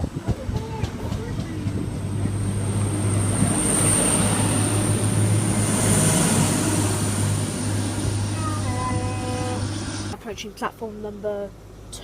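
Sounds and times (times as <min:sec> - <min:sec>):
train running past: 0:00.0 - 0:10.2
high whine: 0:01.6 - 0:10.2.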